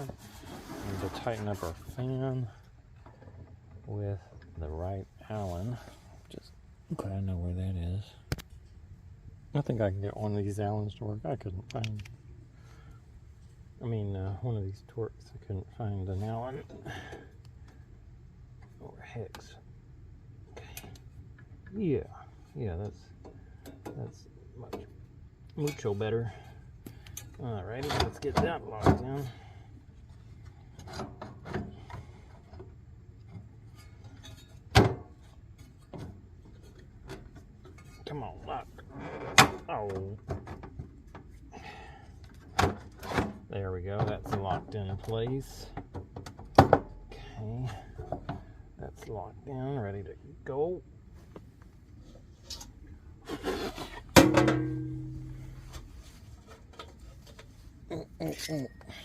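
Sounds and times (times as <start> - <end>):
metallic clang: 54.1 - 55.8.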